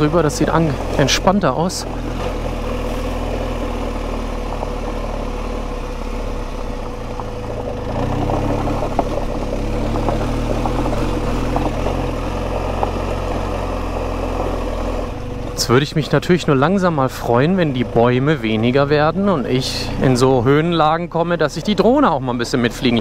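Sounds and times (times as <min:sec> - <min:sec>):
motorcycle engine running low revs: 0:00.0 - 0:23.0
stones crunching under tyres: 0:00.0 - 0:23.0.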